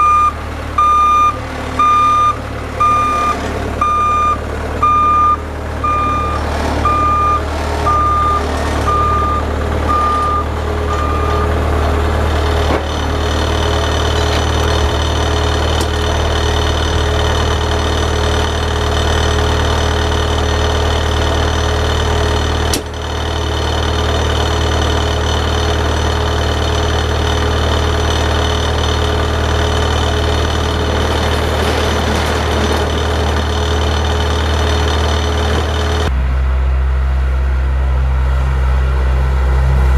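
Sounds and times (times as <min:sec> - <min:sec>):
reverse warning beeps: 0:00.0 - 0:11.6
vehicle engine running: 0:00.0 - 0:39.9.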